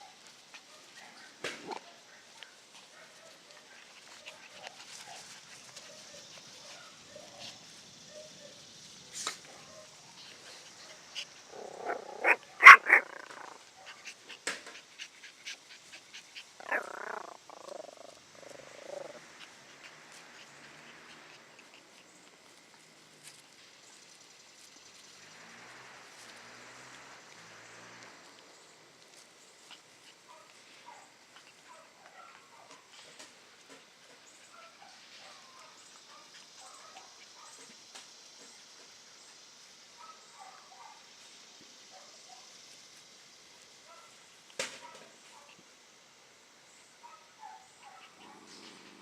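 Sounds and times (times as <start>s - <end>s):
puppies barking and yipping: 0.0s - 8.6s, 9.3s - 23.4s, 29.1s - 37.8s, 47.0s - 49.0s.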